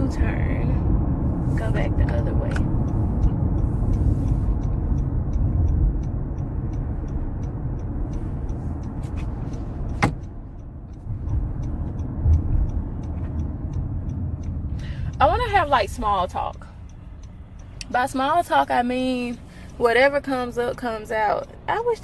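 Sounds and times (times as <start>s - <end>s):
road and engine rumble: 0.0s - 22.0s
turn signal ticking: 0.0s - 22.0s
sharp click: 8.8s - 10.4s.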